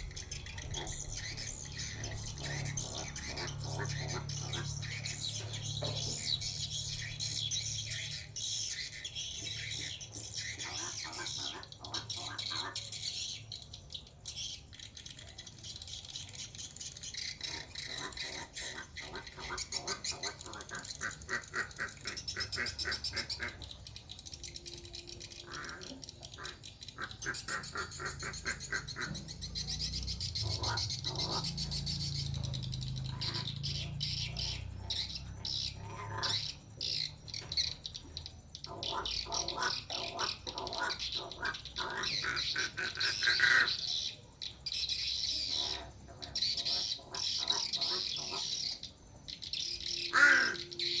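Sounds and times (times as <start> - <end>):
crow squawking: 0.0 - 13.4, 17.2 - 23.8, 24.5 - 51.0.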